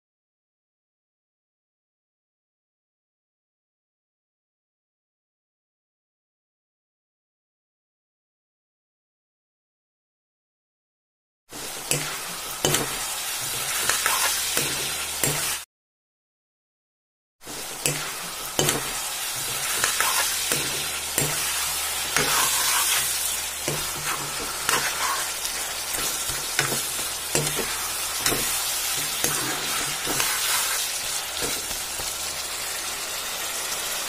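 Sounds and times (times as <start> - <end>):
curry sizzling in a pan: 11.5 - 15.7, 17.4 - 34.0
metal spatula scraping a pan: 11.6 - 15.6, 17.5 - 32.3.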